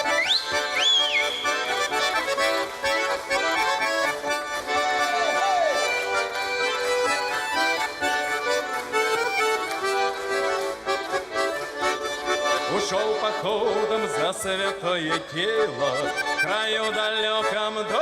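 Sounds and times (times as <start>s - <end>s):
accordion playing chords and melody: 0.0s - 18.0s.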